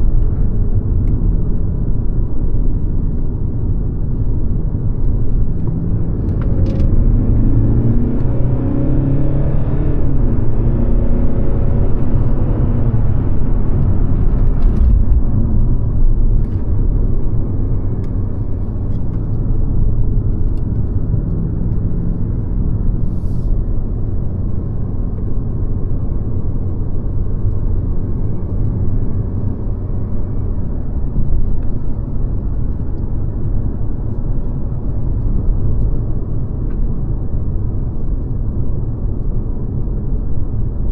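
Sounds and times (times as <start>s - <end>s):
car engine rumble: 0.0s - 40.9s
road noise: 0.0s - 40.9s.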